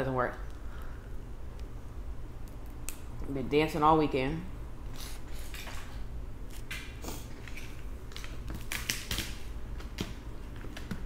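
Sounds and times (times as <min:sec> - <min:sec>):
crab shells cracking: 0:08.0 - 0:10.1.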